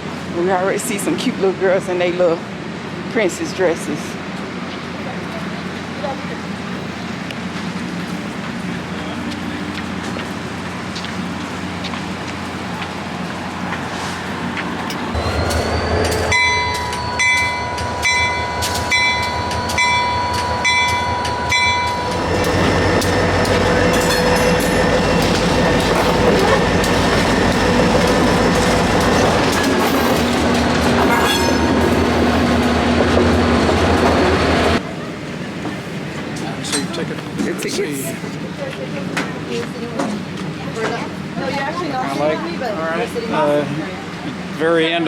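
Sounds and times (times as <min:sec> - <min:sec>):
train rumble and hiss: 0:00.0 - 0:45.0
bell ringing: 0:15.2 - 0:29.8, 0:30.8 - 0:32.3.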